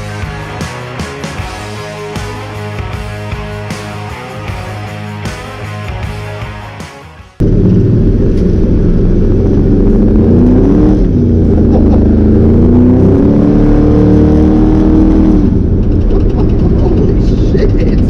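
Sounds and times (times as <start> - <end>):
engine revving hard: 7.4 - 17.2.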